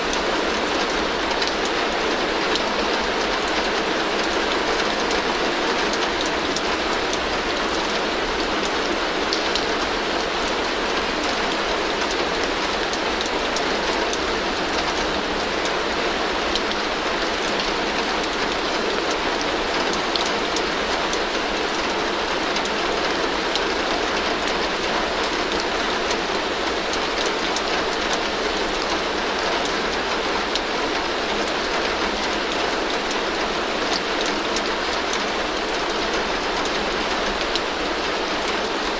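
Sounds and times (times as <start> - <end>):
heavy rain on a tin roof: 0.0 - 38.9.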